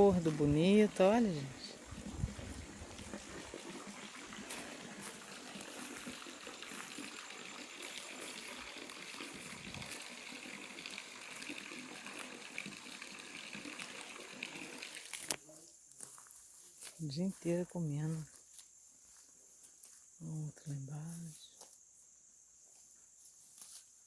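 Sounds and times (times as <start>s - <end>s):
running water rushing: 0.0s - 15.4s.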